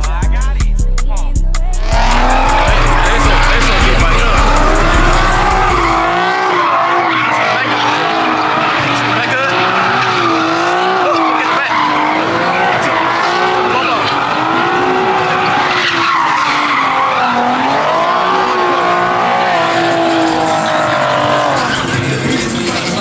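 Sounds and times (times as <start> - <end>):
car tires squealing: 1.6 - 23.0.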